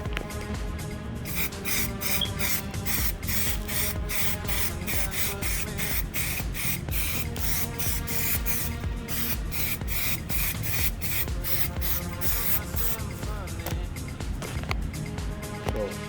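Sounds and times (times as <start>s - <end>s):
hissing hi-hat beat: 0.0s - 16.0s.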